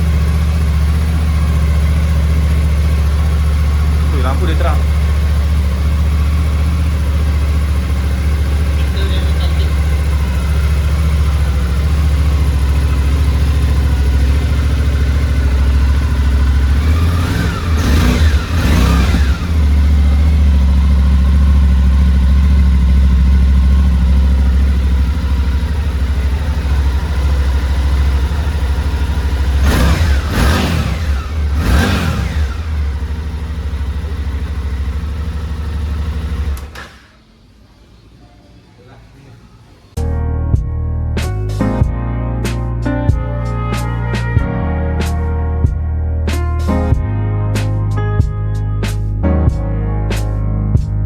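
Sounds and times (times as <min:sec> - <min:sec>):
engine revving: 0:00.0 - 0:37.9
motorcycle engine idling: 0:00.0 - 0:40.0.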